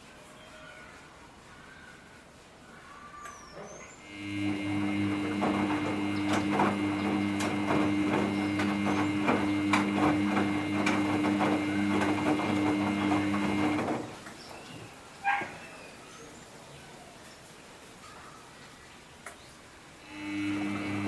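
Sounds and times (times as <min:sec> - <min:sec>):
washing machine motor hum: 0:04.0 - 0:14.6, 0:20.0 - 0:21.0
clicks and knocks of tumbling load: 0:04.4 - 0:14.9.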